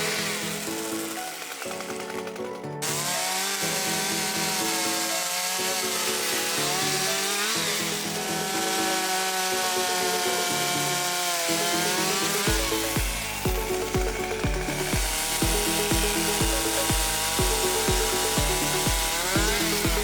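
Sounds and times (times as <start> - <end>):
background music: 0.0 - 20.0
chainsaw cutting wood: 0.0 - 20.0
low beat: 12.1 - 20.0.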